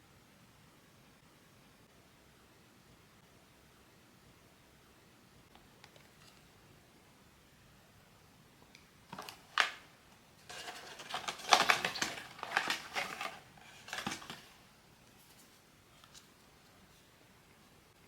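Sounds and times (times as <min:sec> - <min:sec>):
packaging crinkling and rustling: 0:09.1 - 0:14.6
toy packaging clicks: 0:10.5 - 0:14.4.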